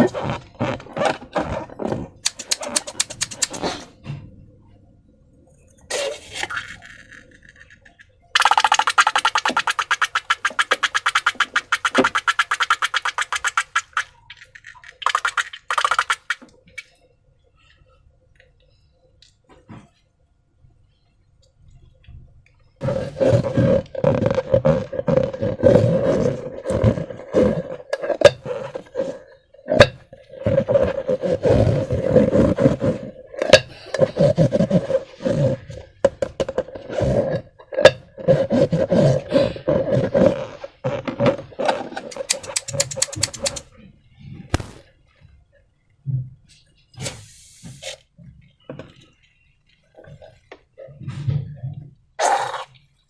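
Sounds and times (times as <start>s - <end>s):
wet slime crackles and pops: 44.5s - 44.9s.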